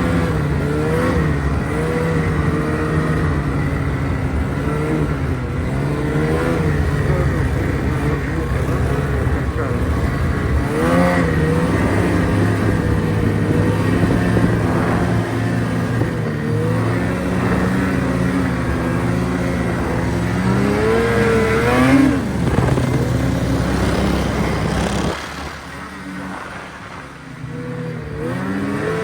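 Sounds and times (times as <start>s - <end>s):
vehicle engine revving: 0.0s - 29.0s.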